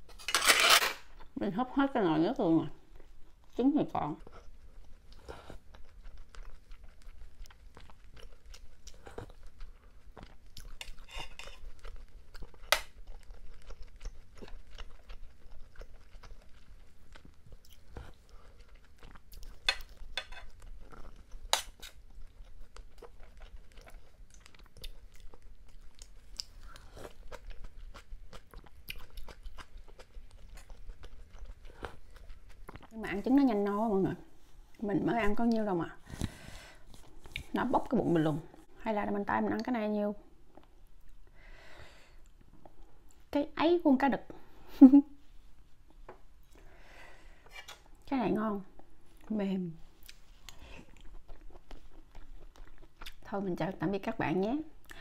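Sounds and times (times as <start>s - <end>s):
wet chewing mouth sounds: 4.1s - 33.0s, 49.9s - 53.3s.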